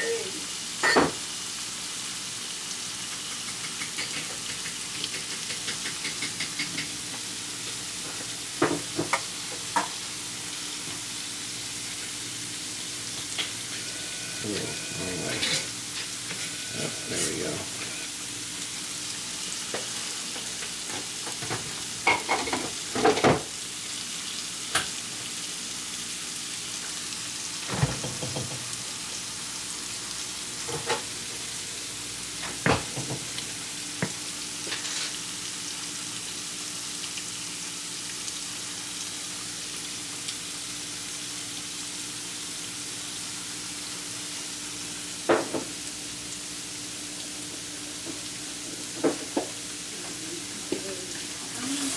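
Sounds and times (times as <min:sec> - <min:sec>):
vegetables sizzling in a pan: 0:00.0 - 0:51.9
spoon scraping a pan: 0:13.2 - 0:18.2.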